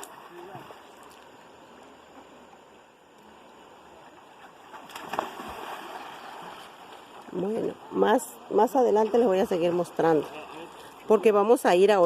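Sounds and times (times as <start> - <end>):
river water rushing: 0.0 - 11.6.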